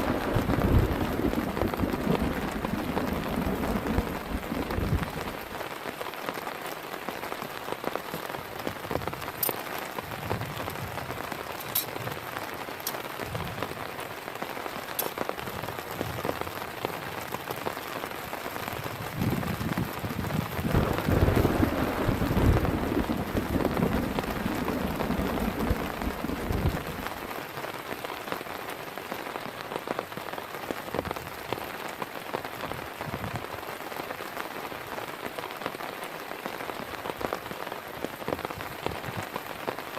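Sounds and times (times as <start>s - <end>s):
heavy rain falling: 0.0s - 39.9s
low rumble: 20.6s - 27.2s.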